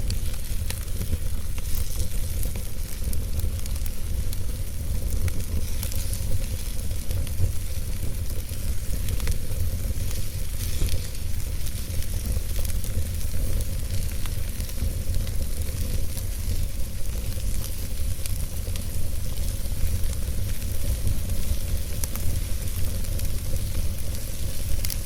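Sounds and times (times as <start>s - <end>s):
burning wood crackling and popping: 0.0s - 25.0s
fire hissing and rumbling: 0.0s - 25.0s.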